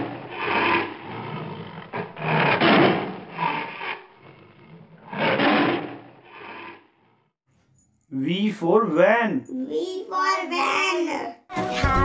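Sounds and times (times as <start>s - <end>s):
tiger growling: 0.0s - 7.1s.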